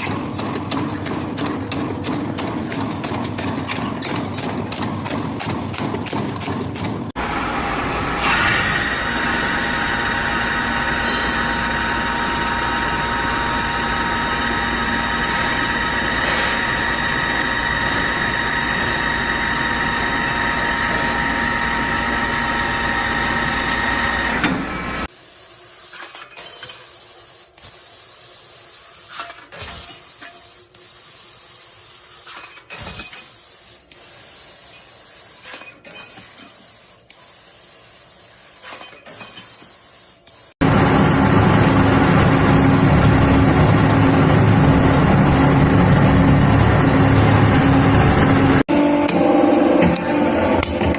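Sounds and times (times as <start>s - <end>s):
factory machinery humming: 0.0s - 25.6s, 40.6s - 50.9s.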